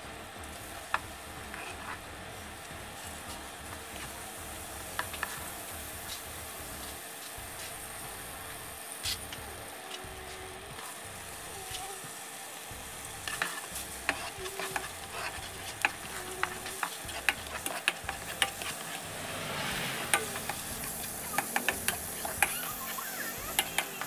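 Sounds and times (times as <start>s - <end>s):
ginger sizzling in hot oil: 0.0s - 24.0s
spatula scraping a pan: 1.5s - 2.0s, 13.2s - 24.0s.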